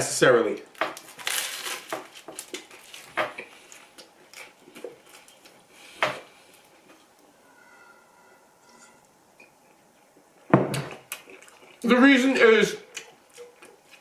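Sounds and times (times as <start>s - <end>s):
chewing crunches: 1.0s - 5.7s, 10.9s - 11.9s, 12.8s - 14.0s.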